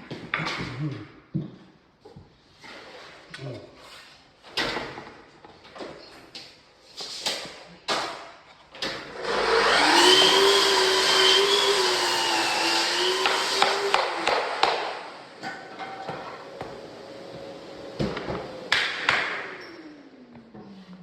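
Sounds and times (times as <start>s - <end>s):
power tool motor running: 9.1s - 15.3s.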